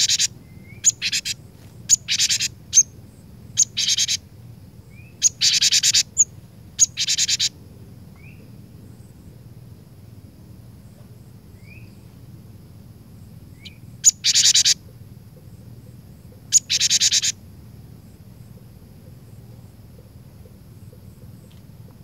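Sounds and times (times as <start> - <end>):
bird harsh buzzy calls: 0.0 - 7.6, 13.5 - 15.0, 16.4 - 17.4.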